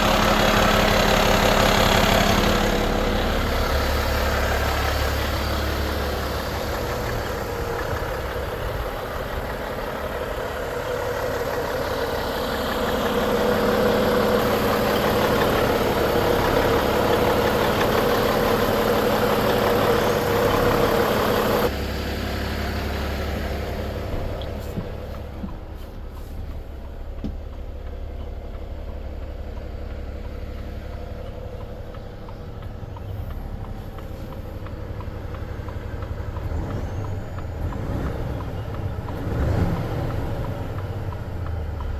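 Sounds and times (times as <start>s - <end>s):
diesel truck engine idling: 0.0s - 41.9s
faint clicks: 24.4s - 39.3s.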